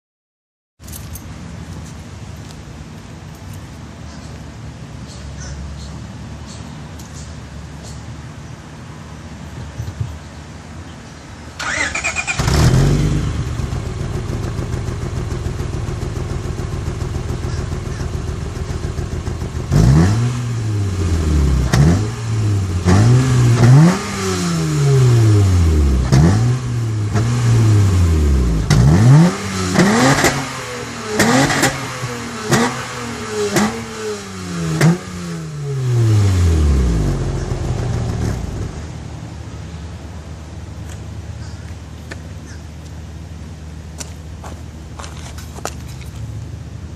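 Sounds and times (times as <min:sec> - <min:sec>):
car engine revving and idling: 0:11.6 - 0:39.5.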